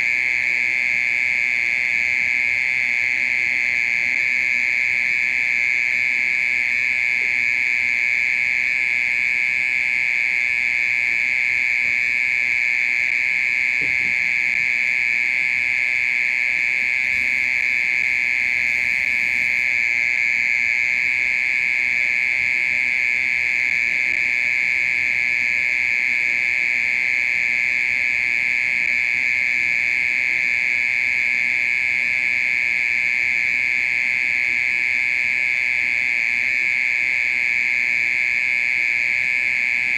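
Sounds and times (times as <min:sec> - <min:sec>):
mole cricket buzzing trill: 0:00.0 - 0:39.9.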